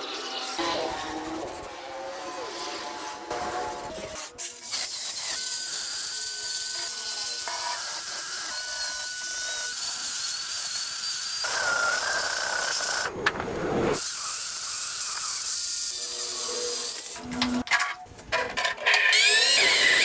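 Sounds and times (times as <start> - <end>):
small power tool whining: 18.9 - 20.0.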